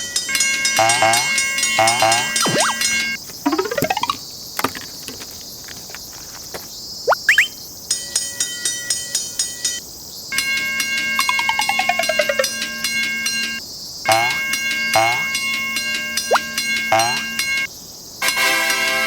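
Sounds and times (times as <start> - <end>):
rapid electronic dings: 0.8 - 4.2, 11.2 - 12.7
falling run of tones: 0.8 - 5.2, 11.2 - 12.6
high insect buzzing: 0.8 - 7.6, 15.0 - 15.3.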